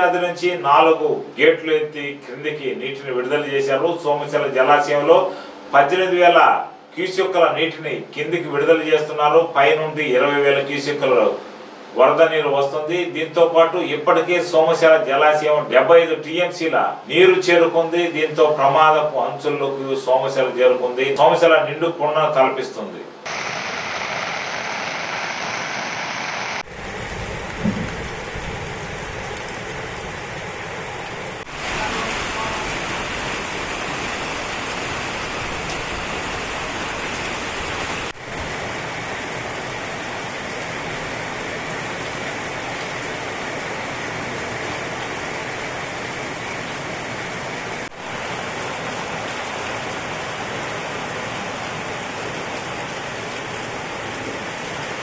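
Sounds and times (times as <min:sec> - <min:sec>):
heavy rain pouring: 0:23.2 - 0:55.0.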